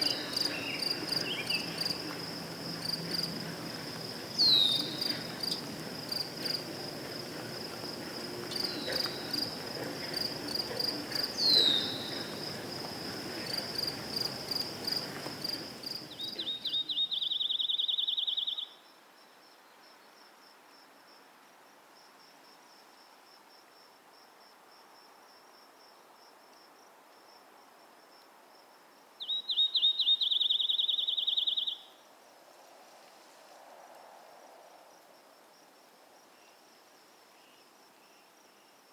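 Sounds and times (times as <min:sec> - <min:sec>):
background hiss: 0:00.0 - 0:38.9
crickets chirping: 0:00.0 - 0:38.9.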